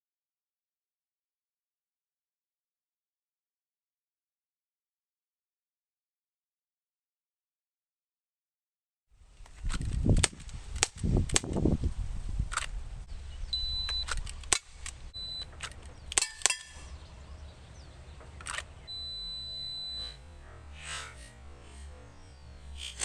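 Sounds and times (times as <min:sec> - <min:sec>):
air pistol shots: 0:14.1 - 0:15.0, 0:15.6 - 0:16.9.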